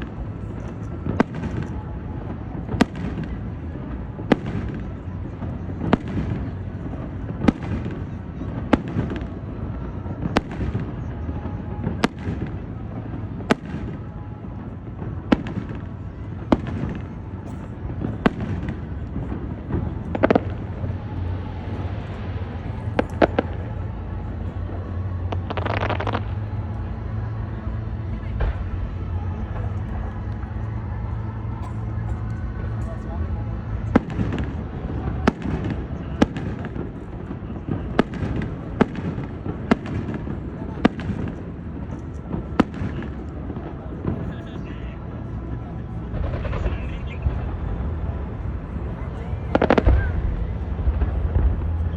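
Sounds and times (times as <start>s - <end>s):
fireworks bursting: 0.0s - 51.9s
steady low rumble: 0.0s - 51.9s
crackling pops: 25.3s - 26.3s.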